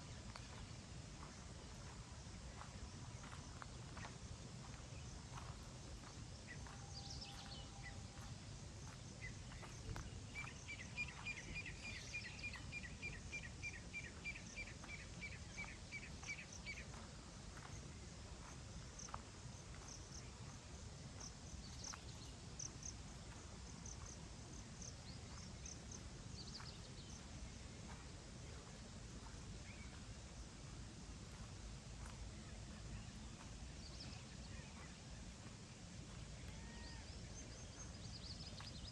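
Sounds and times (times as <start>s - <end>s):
low steady rumble: 0.0s - 38.9s
birds chirping: 4.7s - 17.0s.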